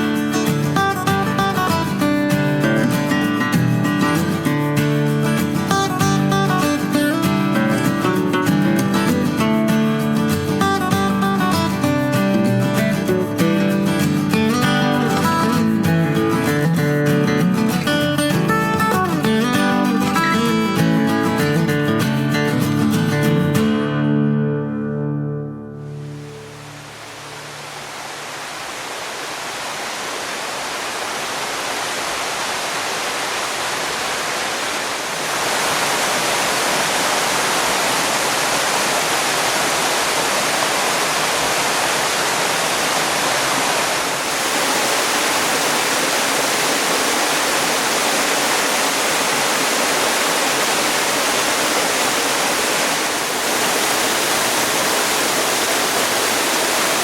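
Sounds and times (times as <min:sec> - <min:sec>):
waterfall rushing: 0:00.0 - 0:21.7, 0:25.8 - 0:57.0.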